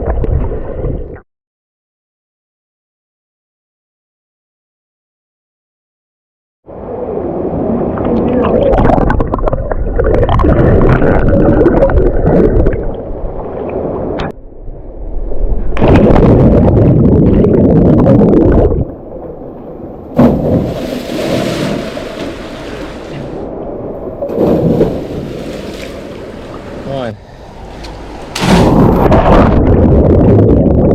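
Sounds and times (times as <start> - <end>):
falling water hissing rush: 20.7 - 23.4
creek water rushing and gurgling: 20.7 - 28.4.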